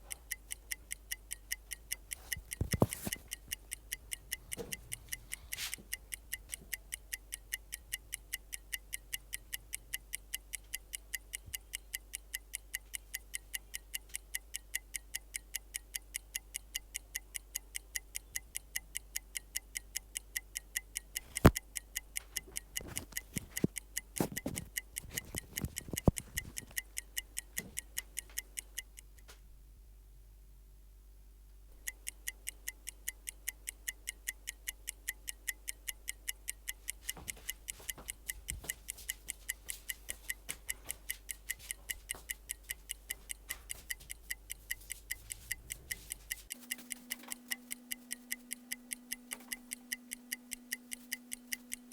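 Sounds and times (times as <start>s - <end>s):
clock ticking quickly: 0.0s - 29.3s, 31.7s - 51.9s
faint knocks and clicks: 1.7s - 6.8s, 21.2s - 29.5s, 36.8s - 50.0s.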